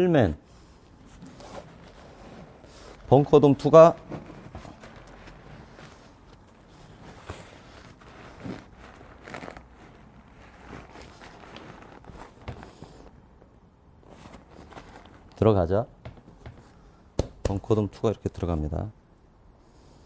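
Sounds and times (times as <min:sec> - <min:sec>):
fabric rustling: 0:00.5 - 0:17.0
thumps against a case: 0:16.0 - 0:17.6.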